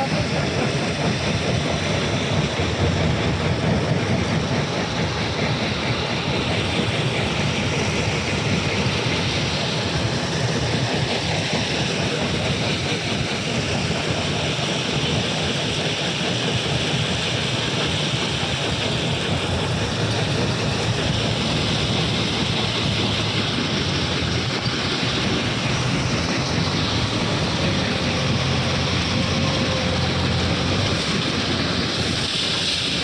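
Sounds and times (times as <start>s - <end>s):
heavy machinery rumbling: 17.8s - 33.0s.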